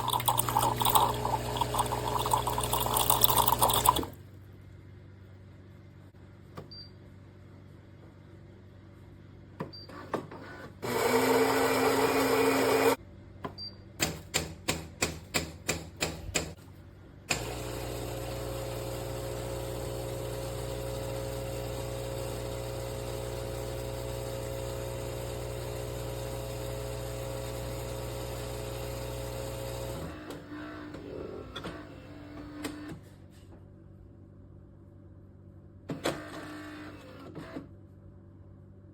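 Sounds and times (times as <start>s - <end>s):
coffee grinder whirring: 0.0s - 4.1s, 10.8s - 13.0s, 17.4s - 30.1s
pump humming: 0.0s - 4.2s.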